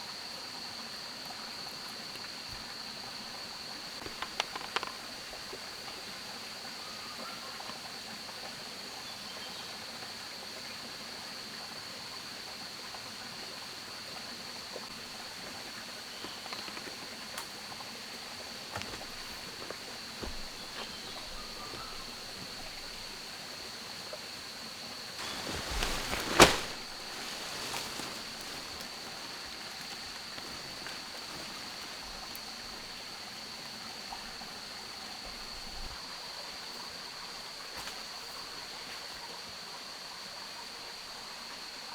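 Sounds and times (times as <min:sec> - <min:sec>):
hiss like running water: 0:00.0 - 0:41.9
rustling: 0:18.8 - 0:23.2, 0:25.2 - 0:32.5.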